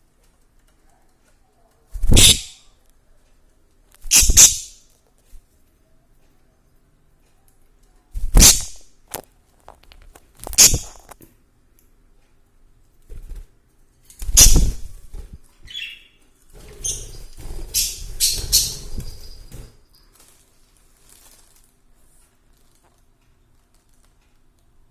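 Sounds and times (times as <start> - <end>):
birds scuffling and flapping: 0.0 - 2.3, 12.9 - 24.2
bird chirp: 2.0 - 2.7, 4.0 - 4.8, 14.3 - 14.8, 15.6 - 20.0.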